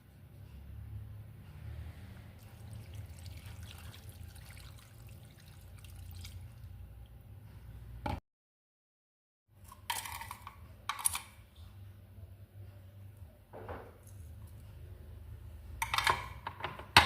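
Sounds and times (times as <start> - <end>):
water trickling and splashing: 2.4 - 6.8.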